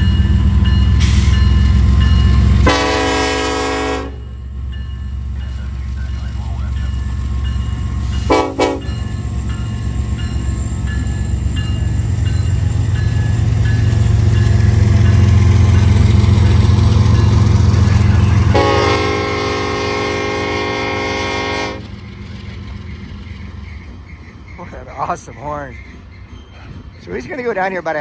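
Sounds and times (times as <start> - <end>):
locomotive engine drone: 0.0 - 28.0
train horn blasts: 2.6 - 4.4, 8.2 - 9.0, 18.3 - 21.9
multi-note air horn: 2.7 - 4.2, 8.3 - 8.9, 18.5 - 21.8.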